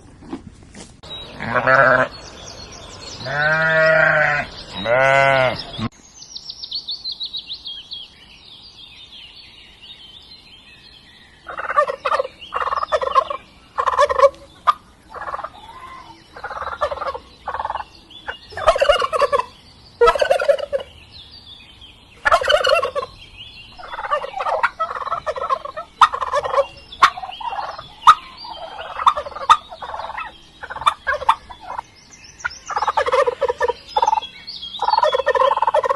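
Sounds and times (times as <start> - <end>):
turkeys gobbling: 11.5 - 15.7, 16.4 - 17.8, 18.5 - 20.8, 22.2 - 23.1, 23.8 - 31.8, 32.7 - 34.2, 34.8 - 35.9.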